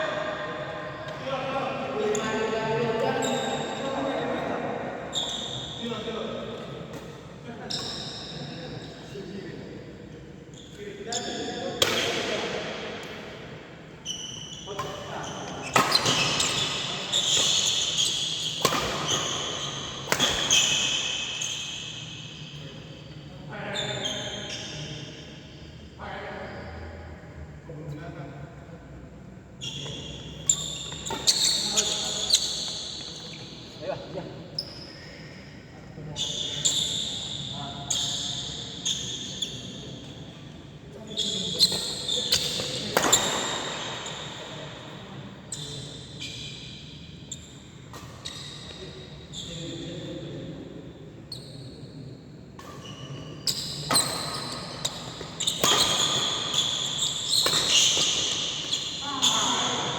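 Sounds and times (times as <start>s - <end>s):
shoes squeaking on court: 14.0s - 25.2s, 29.6s - 35.1s, 36.1s - 40.3s, 41.0s - 49.8s, 52.6s - 59.9s
racket hitting shuttlecock: 18.5s - 20.8s, 54.9s - 58.8s.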